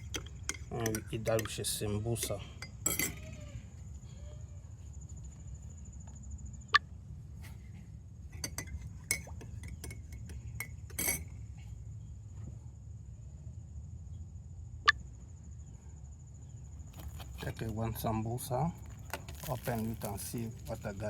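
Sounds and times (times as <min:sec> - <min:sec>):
dishes and cutlery clinking: 0:00.0 - 0:03.2, 0:08.4 - 0:11.3
low background rumble: 0:00.0 - 0:21.0.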